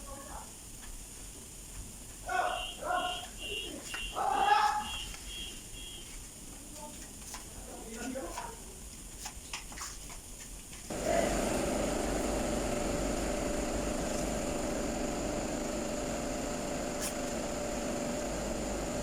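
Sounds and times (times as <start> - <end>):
motor running with constant tone: 10.9 - 19.0.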